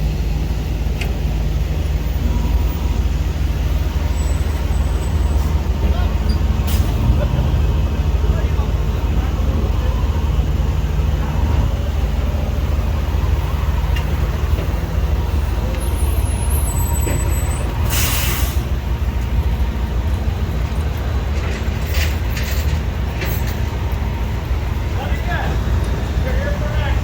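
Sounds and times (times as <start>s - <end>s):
heavy vehicle engine running: 0.0s - 27.0s
air brake hiss: 17.8s - 18.7s.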